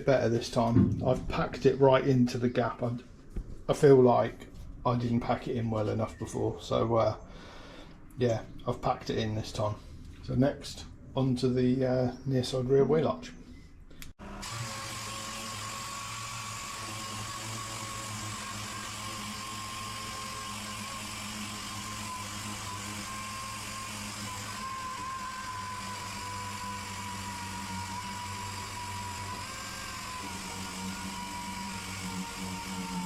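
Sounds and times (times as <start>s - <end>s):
electric power tool whining: 14.2s - 33.0s.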